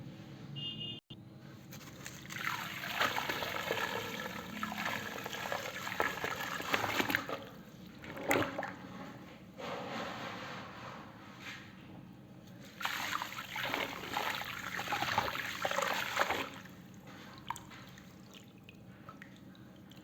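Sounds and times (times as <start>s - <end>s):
crackling trickle of water: 1.7s - 8.8s, 12.6s - 20.0s
sharp splash: 1.9s - 7.5s, 12.7s - 16.7s.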